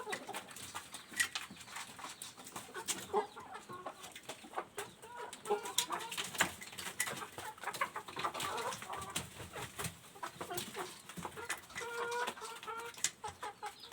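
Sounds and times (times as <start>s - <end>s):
chickens clucking: 0.0s - 13.9s.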